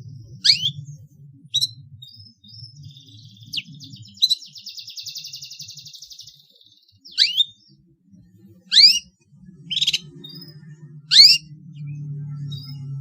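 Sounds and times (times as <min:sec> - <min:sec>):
faint low hum: 0:00.0 - 0:13.0
upward-sweeping bird calls: 0:00.3 - 0:06.3, 0:07.0 - 0:07.7, 0:08.7 - 0:09.1, 0:09.7 - 0:11.5.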